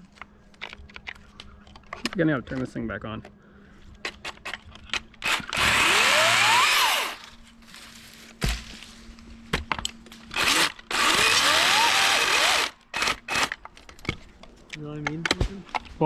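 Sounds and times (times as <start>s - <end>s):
battery chainsaw whining: 5.2s - 7.5s, 10.3s - 13.6s.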